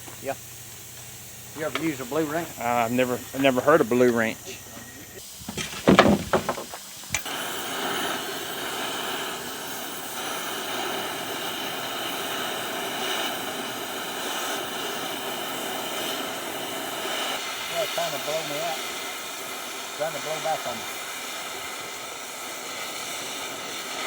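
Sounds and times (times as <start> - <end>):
torch flame hissing: 0.0 - 24.0
torch lighting pop: 0.9 - 2.2.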